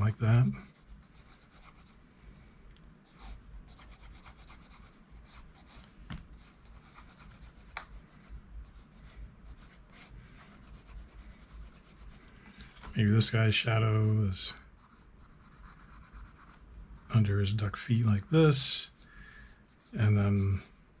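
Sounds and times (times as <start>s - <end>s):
pencil scratching on paper: 0.0s - 2.2s, 3.0s - 12.2s, 14.5s - 20.8s.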